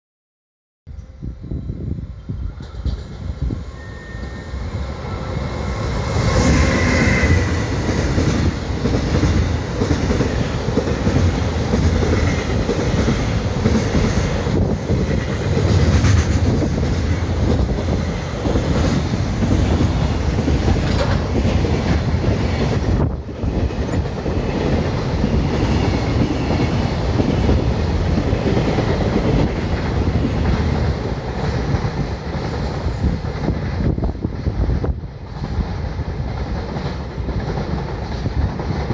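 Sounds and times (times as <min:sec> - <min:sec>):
electric locomotive passing: 0:00.9 - 0:38.9
wheels clattering on rail joints: 0:07.6 - 0:33.6.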